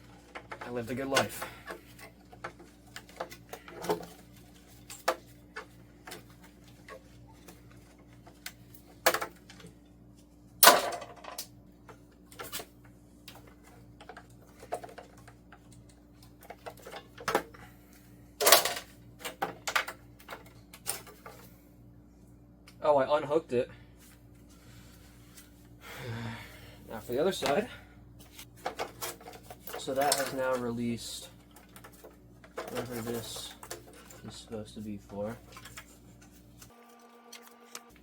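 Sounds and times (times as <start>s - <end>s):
plastic parts clicking and knocking: 0.0s - 7.6s, 8.2s - 9.8s, 10.6s - 17.6s, 18.4s - 21.5s, 28.5s - 30.7s, 31.4s - 34.3s.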